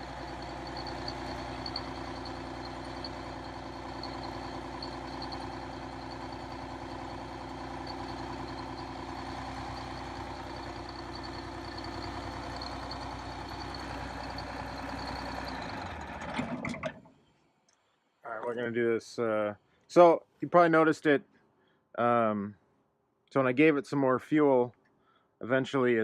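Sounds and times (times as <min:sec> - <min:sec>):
bus diesel engine running: 0:00.0 - 0:17.0.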